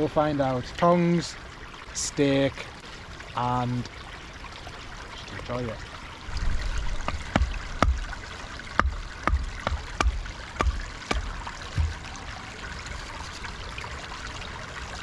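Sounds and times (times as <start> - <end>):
stream running: 0.0 - 15.0
sharp wooden knocks: 7.0 - 12.2.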